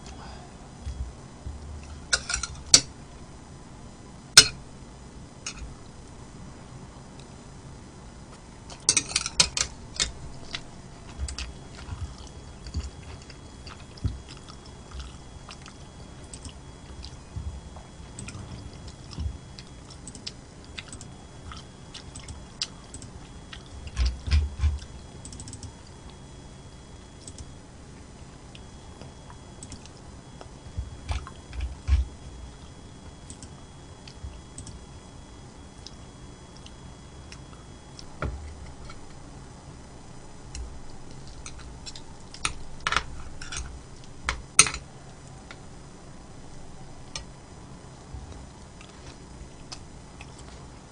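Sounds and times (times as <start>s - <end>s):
chewing and eating: 8.3s - 27.6s, 28.5s - 39.2s, 40.5s - 45.6s, 48.0s - 50.9s
small clicks: 23.9s - 25.8s, 27.2s - 27.5s, 34.1s - 34.8s.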